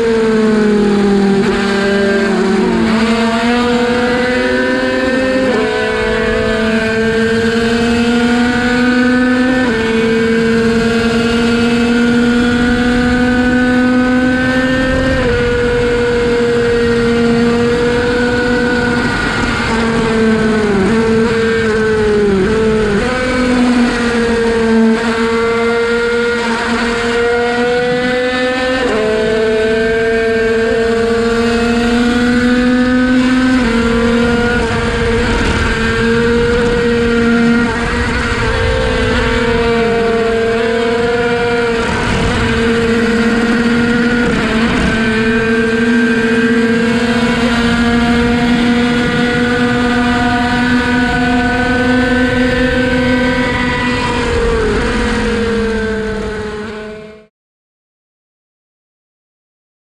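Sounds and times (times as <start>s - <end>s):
two-stroke engine high-pitched buzz: 0.0s - 57.3s.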